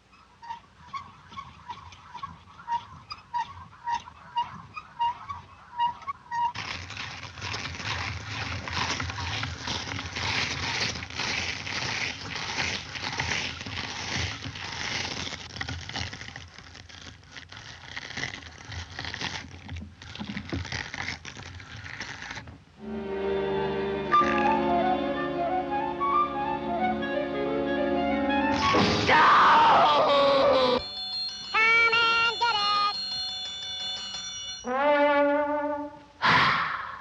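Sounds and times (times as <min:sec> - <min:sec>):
orchestral music with flute: 0:22.8 - 0:29.2.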